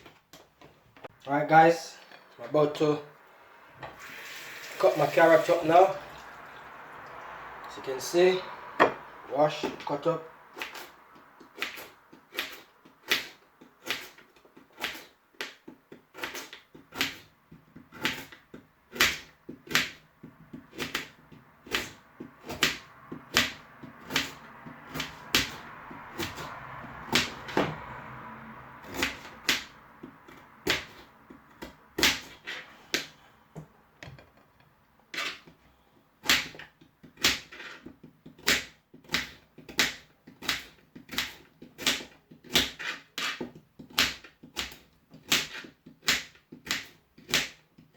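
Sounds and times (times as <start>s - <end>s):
knife chopping on a board: 8.8s - 9.0s, 10.6s - 27.9s, 28.8s - 33.2s, 36.2s - 47.9s.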